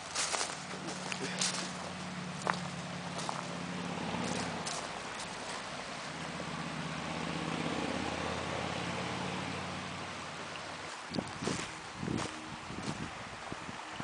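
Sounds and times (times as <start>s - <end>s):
vehicle engine passing: 0.0s - 14.0s.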